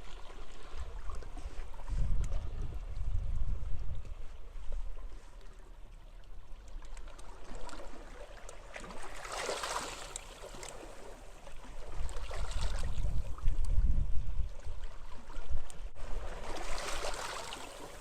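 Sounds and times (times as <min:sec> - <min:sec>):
small waves washing on a beach: 0:00.0 - 0:18.0
wind rumbling on microphone: 0:00.6 - 0:05.4, 0:11.7 - 0:17.1.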